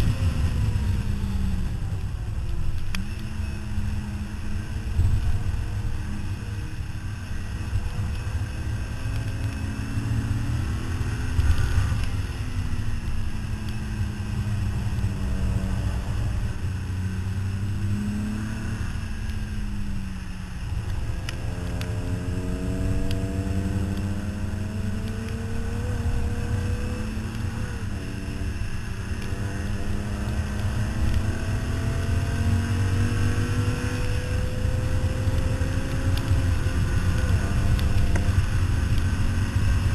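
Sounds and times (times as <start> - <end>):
wind and road noise: 0.0 - 39.9
car engine accelerating: 20.6 - 39.9.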